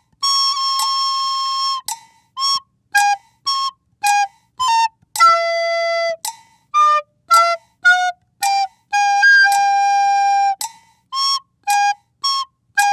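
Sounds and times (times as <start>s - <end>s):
playful flute melody: 0.0s - 12.9s.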